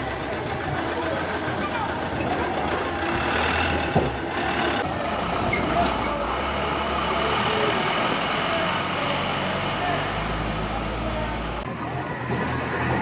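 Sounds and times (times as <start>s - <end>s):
truck engine running: 0.0s - 11.7s.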